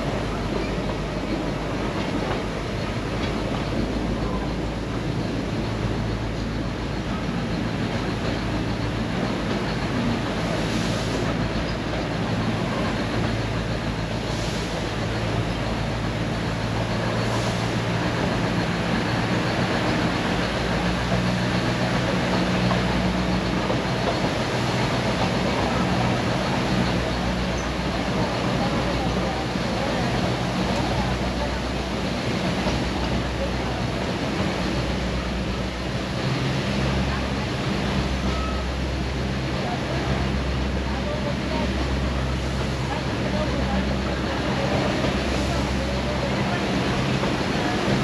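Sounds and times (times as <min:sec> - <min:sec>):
train running noise: 0:00.0 - 0:48.0.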